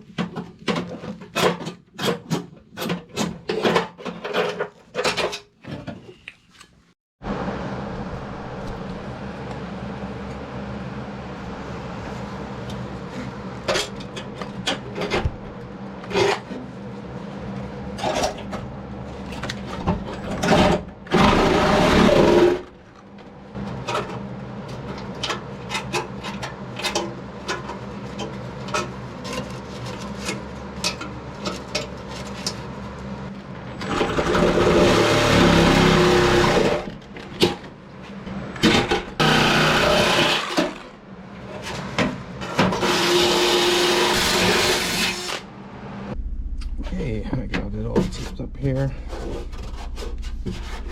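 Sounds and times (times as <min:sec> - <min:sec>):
steady low hum: 0:07.2 - 0:21.2, 0:45.4 - 0:50.9.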